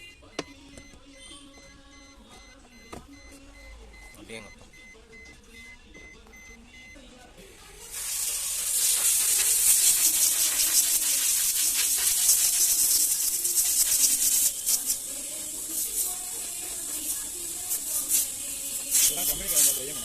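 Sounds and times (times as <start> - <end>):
pressurised jet hissing: 7.9 - 20.0.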